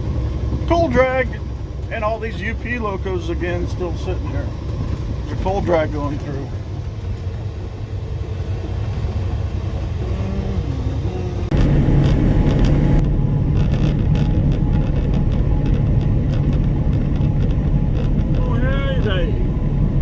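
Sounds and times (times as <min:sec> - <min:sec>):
clicks and rattles: 0:11.5 - 0:19.1.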